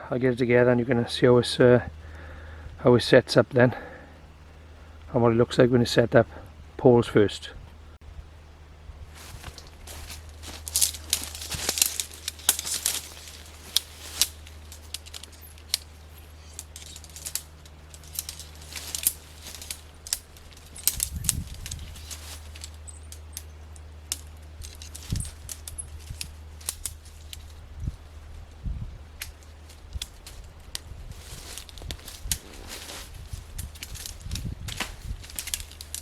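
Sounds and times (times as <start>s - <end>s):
metal tent poles clicking: 9.2s - 27.6s, 29.2s - 36.0s.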